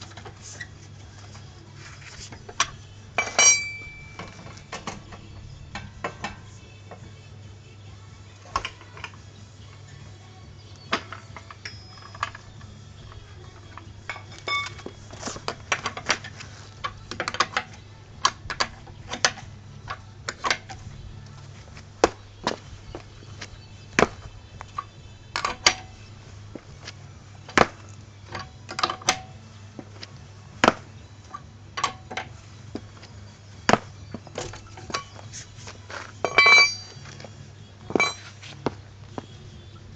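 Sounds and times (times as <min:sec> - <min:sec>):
metal tools clinking: 0:02.5 - 0:06.5, 0:11.1 - 0:12.7, 0:13.5 - 0:17.8, 0:34.1 - 0:37.3, 0:37.9 - 0:38.5.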